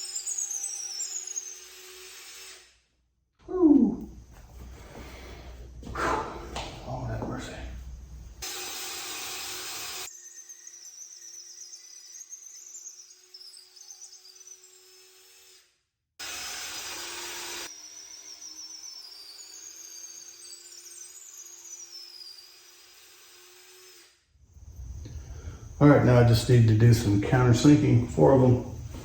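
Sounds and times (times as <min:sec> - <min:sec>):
electric drill boring into wood: 0:00.0 - 0:02.8, 0:08.4 - 0:25.8.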